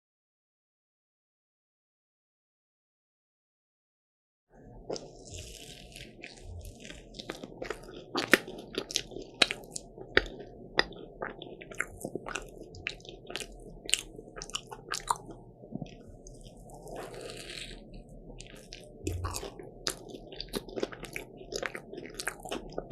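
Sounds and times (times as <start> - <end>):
person chewing: 4.6 - 22.9
crunching pastry: 4.7 - 22.9.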